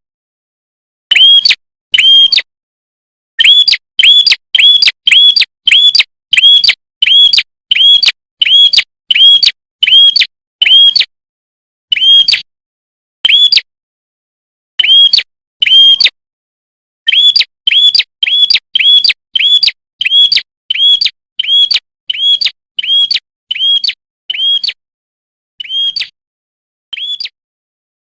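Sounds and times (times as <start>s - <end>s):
bird calling in sharp chirps: 1.1s - 2.5s, 3.4s - 11.1s, 11.9s - 12.5s, 13.2s - 13.7s, 14.8s - 16.1s, 17.1s - 24.8s, 25.6s - 26.2s, 26.9s - 27.4s.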